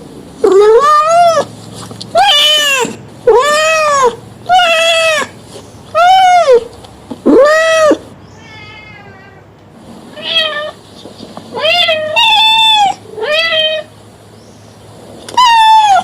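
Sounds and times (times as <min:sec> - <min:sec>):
cat meowing: 0:00.4 - 0:01.5, 0:02.1 - 0:09.5, 0:10.1 - 0:10.8, 0:11.5 - 0:13.9, 0:15.3 - 0:16.0.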